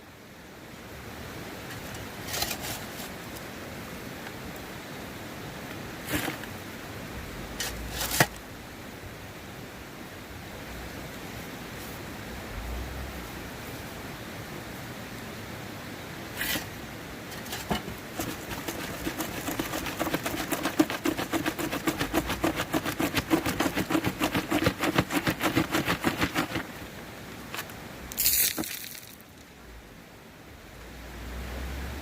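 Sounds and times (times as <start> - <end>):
gravel rattling in a pan: 17.3 - 26.8, 27.5 - 29.2.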